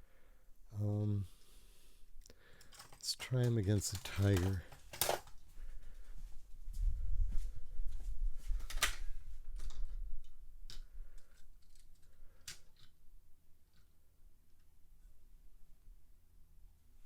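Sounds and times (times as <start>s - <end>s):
toy cars clicking and tapping: 2.6s - 5.3s, 10.7s - 13.0s.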